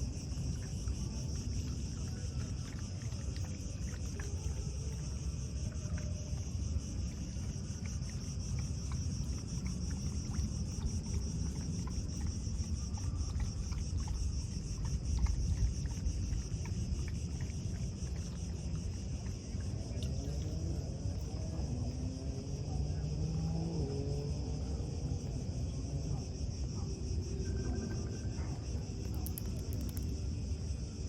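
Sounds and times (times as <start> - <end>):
insects trilling: 0.0 - 31.0.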